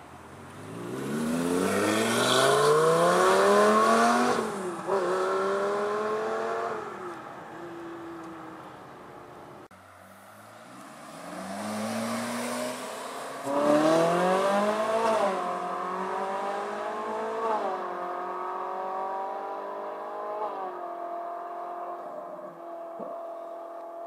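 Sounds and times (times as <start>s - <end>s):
supercar engine accelerating: 11.1s - 24.0s.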